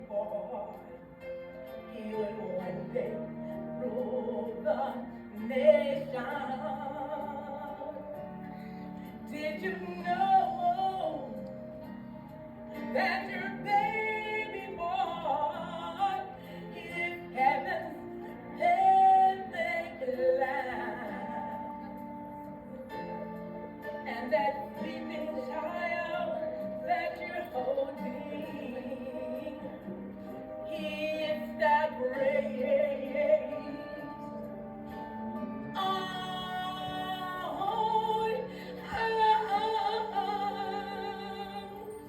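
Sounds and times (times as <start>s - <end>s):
soft instrumental backing: 0.0s - 42.0s
woman singing: 0.0s - 42.0s.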